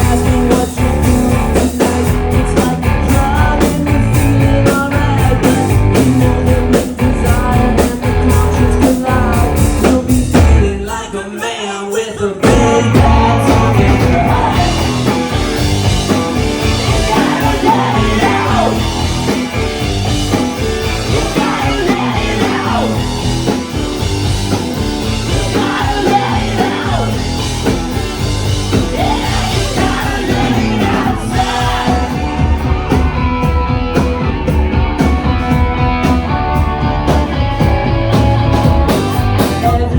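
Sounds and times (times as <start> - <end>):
electric guitars: 0.0 - 10.7, 12.4 - 39.9
bass guitar: 0.0 - 11.0, 12.4 - 39.9
person singing: 0.0 - 15.6, 16.3 - 19.6, 20.6 - 23.6, 25.0 - 27.8, 28.7 - 33.5, 39.3 - 39.9
drums: 0.0 - 39.9.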